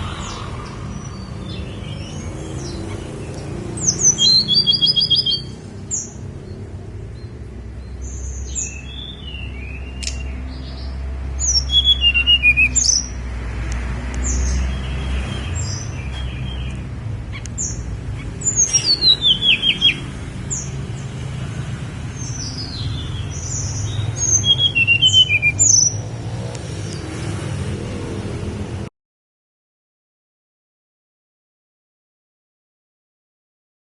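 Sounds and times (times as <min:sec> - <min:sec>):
songbird whistles and trills: 0:00.2 - 0:06.1, 0:08.1 - 0:13.2, 0:15.4 - 0:20.1, 0:22.4 - 0:26.0.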